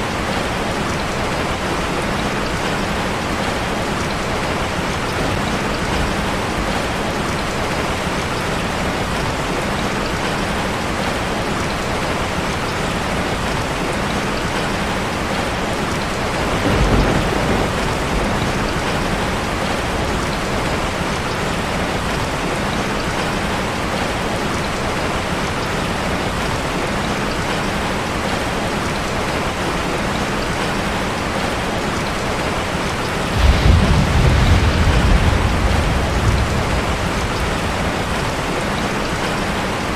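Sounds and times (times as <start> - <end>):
heavy rain on a metal roof: 0.0 - 39.9
thunder rumbling: 14.8 - 22.4, 33.2 - 39.6.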